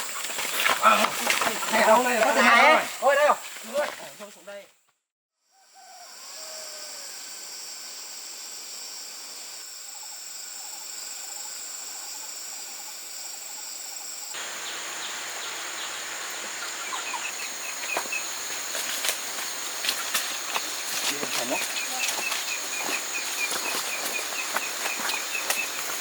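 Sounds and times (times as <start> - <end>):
high insect drone: 5.5 - 26.0
birds chirping: 12.8 - 26.0.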